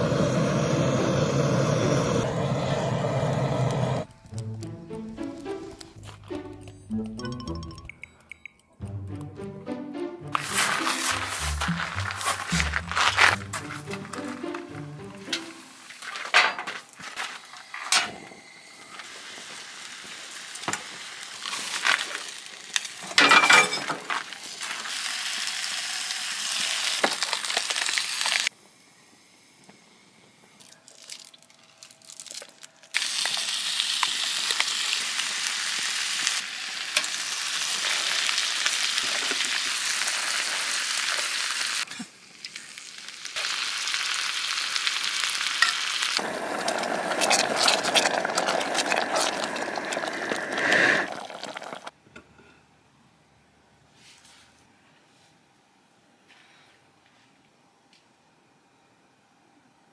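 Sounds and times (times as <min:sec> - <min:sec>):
food sizzling in a pan: 0:00.0 - 0:04.1, 0:10.4 - 0:12.8, 0:17.2 - 0:28.5, 0:32.1 - 0:51.9.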